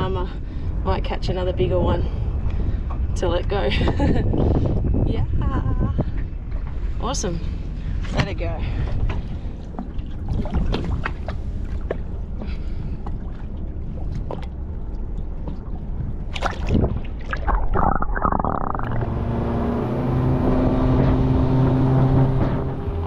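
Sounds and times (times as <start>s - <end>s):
boat motor running: 0.0s - 23.0s
wind rumble: 0.0s - 23.0s
water splashes: 8.0s - 19.6s.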